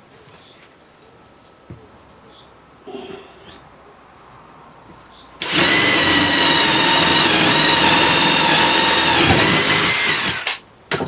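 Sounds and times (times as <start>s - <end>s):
electric drill whining: 5.4s - 10.6s.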